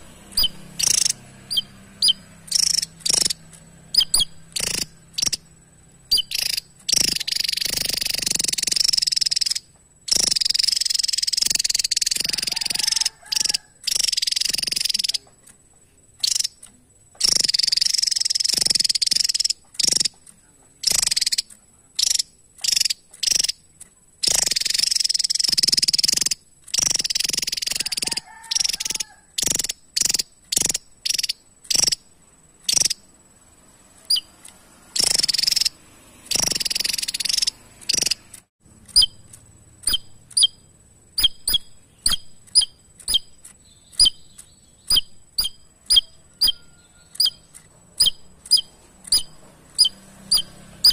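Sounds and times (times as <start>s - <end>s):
sharp bird call notes: 0.3s - 5.4s
bird singing high-pitched phrases: 0.3s - 5.5s, 6.1s - 12.7s, 38.9s - 50.9s.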